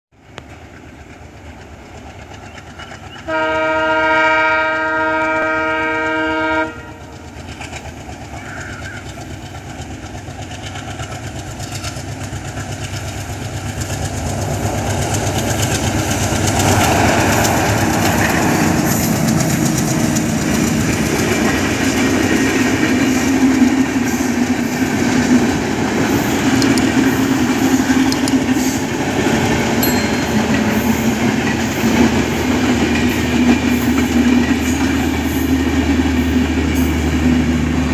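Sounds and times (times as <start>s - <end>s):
train rumbling past: 0.2s - 37.9s
locomotive horn: 3.3s - 7.3s
wheels clattering over rail joints: 7.3s - 29.8s.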